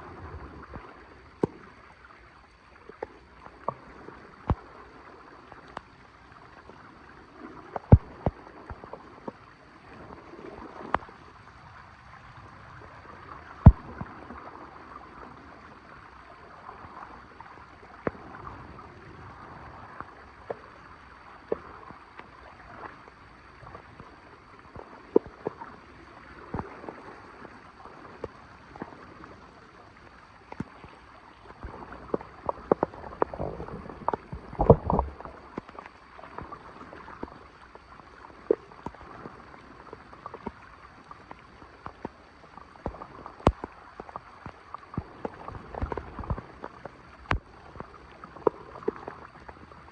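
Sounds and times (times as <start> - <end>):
water gurgling into drain: 30.5 - 40.8.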